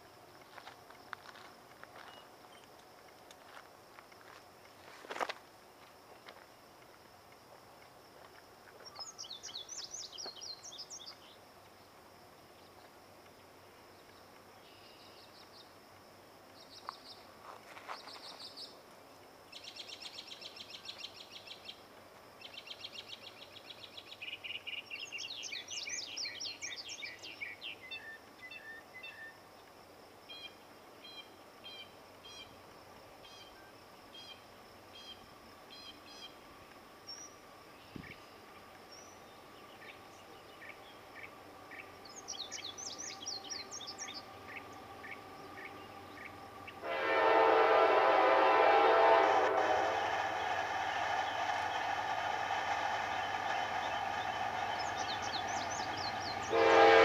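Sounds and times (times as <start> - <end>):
songbirds trilling and chirping: 8.8 - 15.8, 19.5 - 46.9, 51.2 - 57.0.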